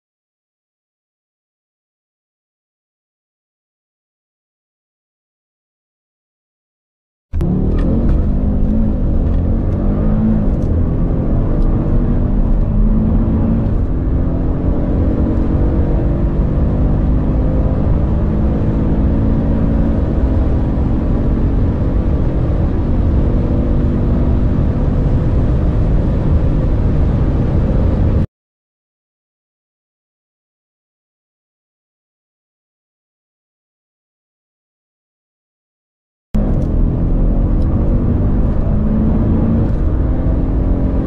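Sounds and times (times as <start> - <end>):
car engine accelerating hard: 7.4 - 28.3, 36.4 - 41.0.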